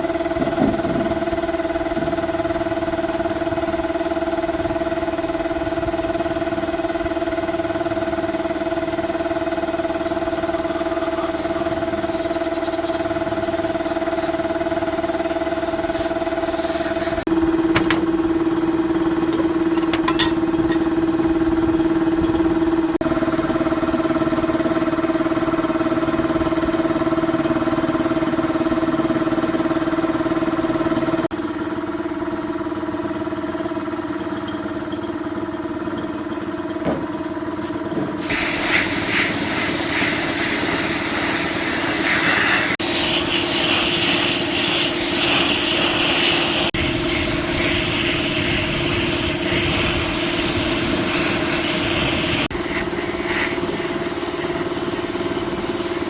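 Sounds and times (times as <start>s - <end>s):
loud hissing spray: 38.2s - 56.0s.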